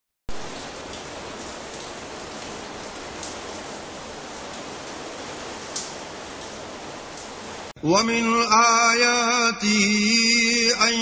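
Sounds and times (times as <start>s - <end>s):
sharp raindrop ticks: 0.3s - 7.7s
rain falling on lawn and path: 0.3s - 7.8s.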